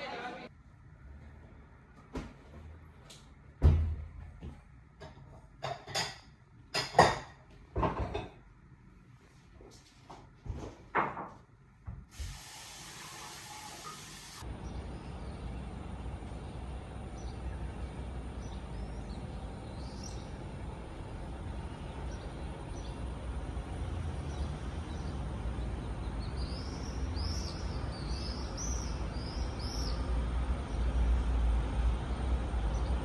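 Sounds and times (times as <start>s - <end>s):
small birds chirping: 14.4s - 31.2s.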